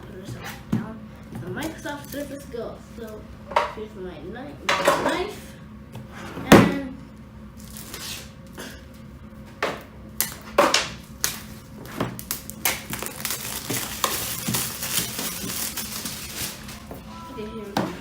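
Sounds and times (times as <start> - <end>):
packing material rustling: 7.6 - 8.3, 11.0 - 17.1
knife scratching packaging: 7.6 - 8.4, 12.2 - 16.9.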